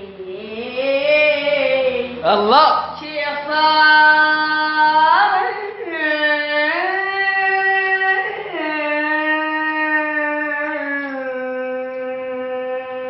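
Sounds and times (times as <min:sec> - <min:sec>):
person singing long notes: 0:00.0 - 0:13.0.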